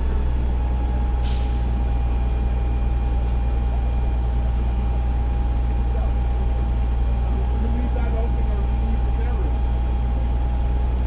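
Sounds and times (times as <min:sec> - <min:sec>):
diesel engine idling: 0:00.0 - 0:11.0
air brakes hissing: 0:01.2 - 0:01.8.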